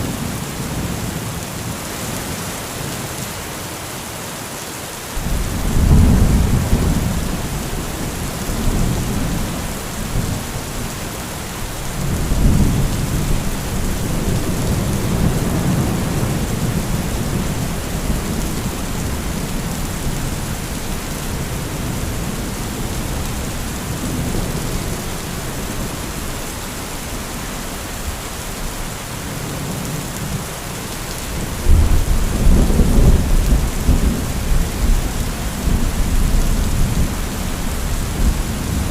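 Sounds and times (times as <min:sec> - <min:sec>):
heavy rain falling: 0:00.0 - 0:38.9
rolling thunder: 0:05.2 - 0:26.0, 0:31.3 - 0:38.9.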